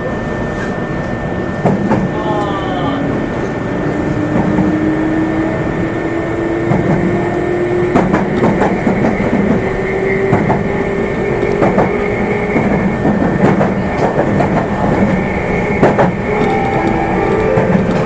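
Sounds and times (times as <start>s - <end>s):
wheel and rail noise: 3.3s - 18.0s
train motor whine: 14.1s - 18.0s.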